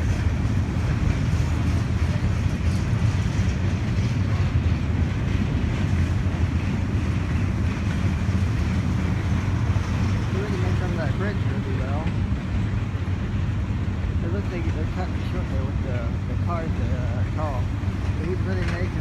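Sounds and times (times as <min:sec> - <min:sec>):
train passing rumble: 0:00.0 - 0:19.0.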